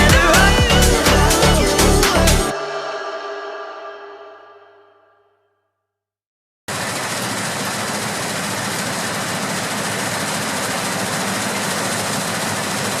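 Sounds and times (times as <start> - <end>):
heavy harvest machinery running: 6.7 - 13.0.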